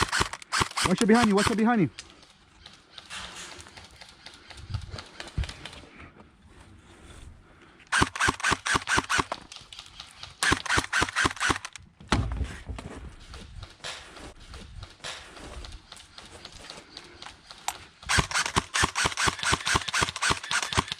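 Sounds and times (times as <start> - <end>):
airsoft gun firing bursts: 0.0 - 1.7, 7.9 - 11.8, 18.0 - 20.9.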